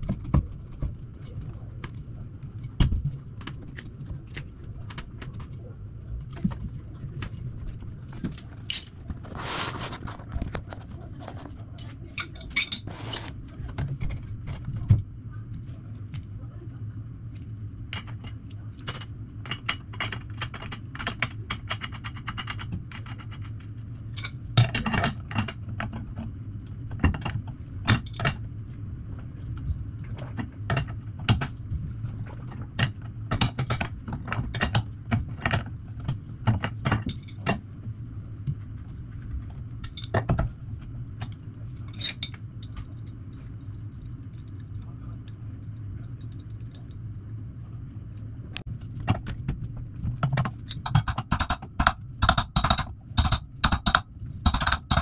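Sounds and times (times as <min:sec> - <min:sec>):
steady low hum: 0:00.0 - 0:55.0
metal tools clinking: 0:08.6 - 0:09.1, 0:11.8 - 0:13.2.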